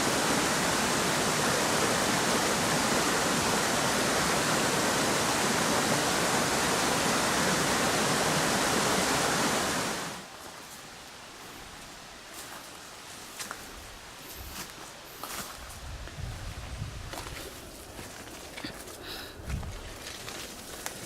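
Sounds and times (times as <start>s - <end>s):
water rushing: 0.0s - 10.4s.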